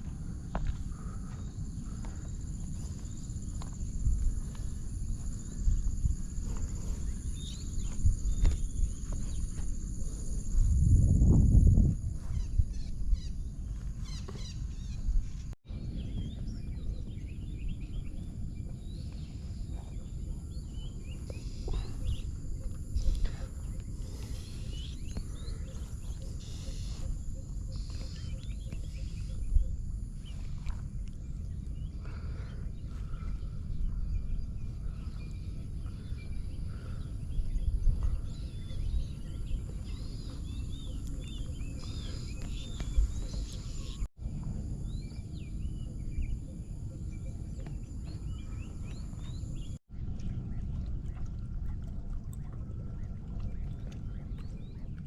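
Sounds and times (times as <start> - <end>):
steady low rumble: 0.0 - 55.0
birds chirping and whistling: 5.4 - 10.4, 12.2 - 30.6, 31.2 - 44.1.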